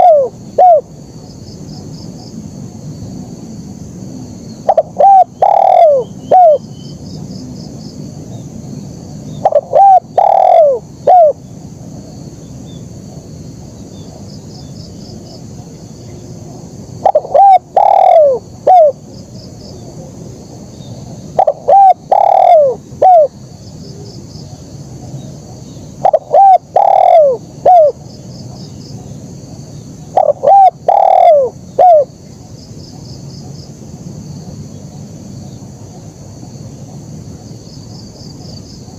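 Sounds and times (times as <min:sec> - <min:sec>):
dove cooing: 0:00.0 - 0:00.9, 0:04.6 - 0:06.6, 0:09.4 - 0:11.4, 0:17.0 - 0:19.0, 0:21.4 - 0:23.3, 0:26.0 - 0:28.0, 0:30.1 - 0:32.1
faint insect chirring: 0:00.0 - 0:38.9.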